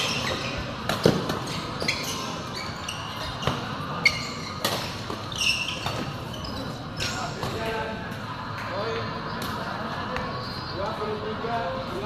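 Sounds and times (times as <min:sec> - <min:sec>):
shoes squeaking on court floor: 0:00.0 - 0:07.8.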